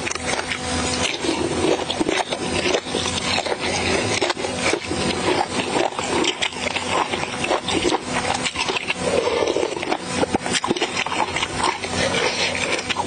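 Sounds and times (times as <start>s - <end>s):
chewing and mouth smacking: 0.0s - 13.0s.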